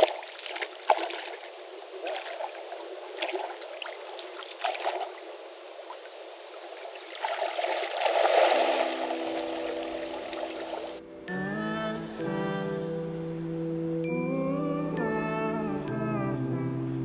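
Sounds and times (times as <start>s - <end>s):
water trickling and splashing: 0.0s - 11.0s
music: 8.8s - 17.0s.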